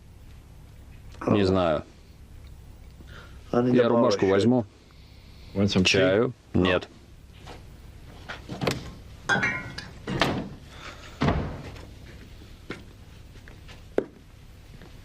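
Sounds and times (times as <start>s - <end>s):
knocks and thuds: 11.2s - 11.8s.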